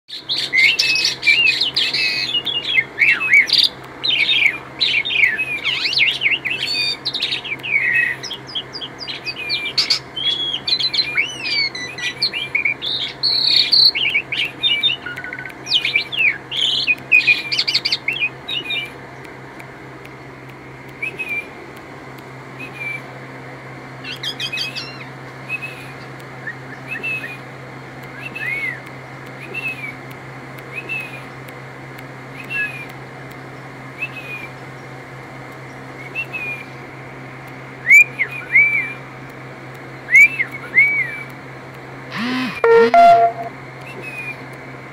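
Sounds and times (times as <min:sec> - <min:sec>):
starling singing: 0:00.2 - 0:18.9, 0:42.1 - 0:43.5.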